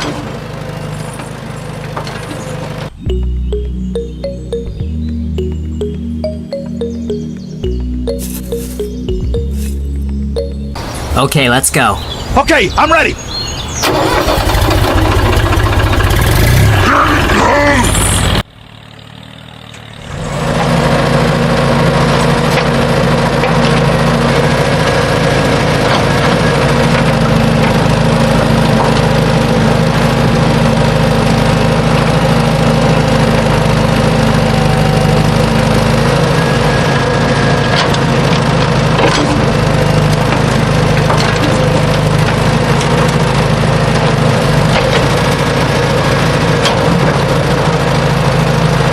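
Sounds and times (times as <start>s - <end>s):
mini tractor motor droning: 0.0s - 3.0s, 13.3s - 48.9s.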